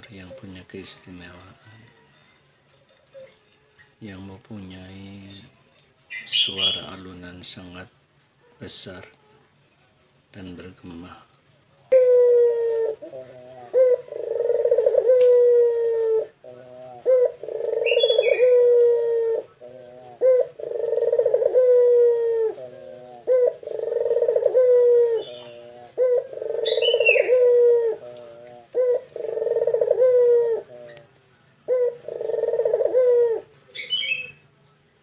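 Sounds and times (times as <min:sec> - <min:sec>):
small bird chirping: 0:00.0 - 0:12.0, 0:16.2 - 0:35.0
dove cooing: 0:11.9 - 0:34.4.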